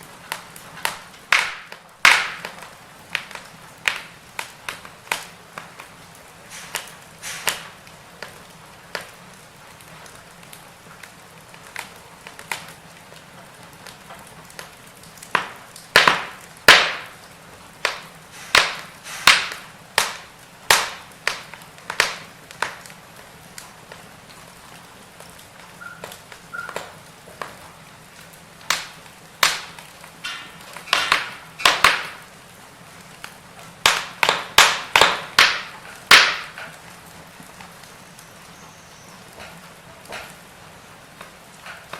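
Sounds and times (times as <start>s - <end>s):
faint steady hiss: 0.0s - 41.9s
firewood crackling and popping: 0.0s - 41.9s.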